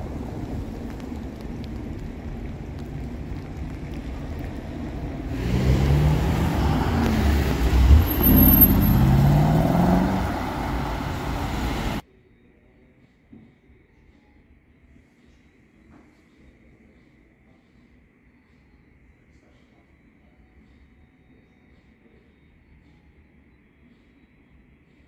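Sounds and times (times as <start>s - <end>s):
car accelerating and driving off: 0.0s - 12.0s
car engine idling: 2.5s - 12.0s.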